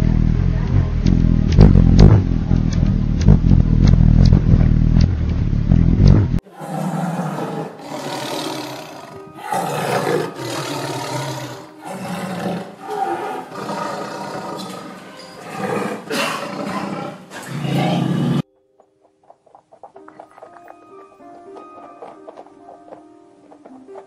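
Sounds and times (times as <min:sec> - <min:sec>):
big cat roaring and growling: 0:06.0 - 0:18.4.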